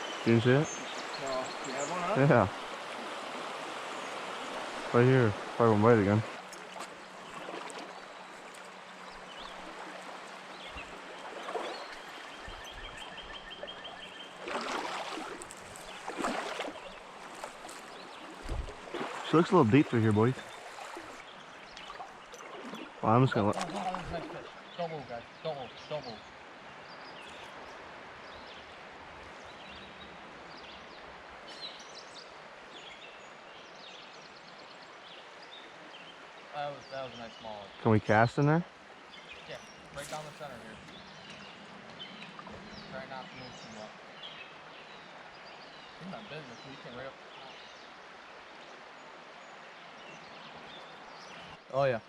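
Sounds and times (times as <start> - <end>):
creek water flowing: 0.0 - 52.0
songbirds chirping: 0.0 - 52.0
splashes in water: 0.8 - 24.6.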